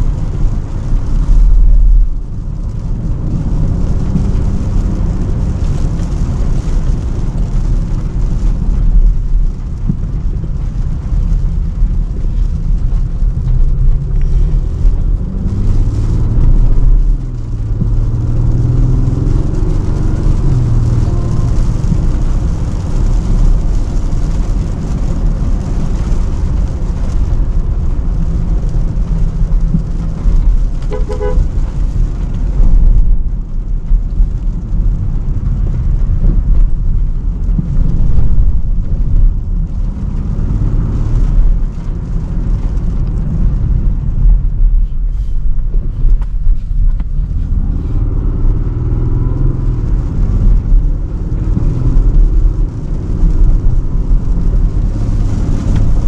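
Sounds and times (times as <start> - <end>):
tyres and engine rumble: 0.0 - 56.0
engine note rising and falling: 13.5 - 22.1.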